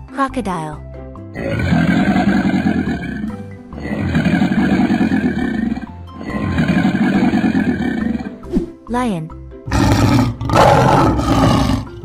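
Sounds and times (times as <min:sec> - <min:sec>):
rough rasping growl: 0:01.4 - 0:08.4, 0:09.7 - 0:12.0.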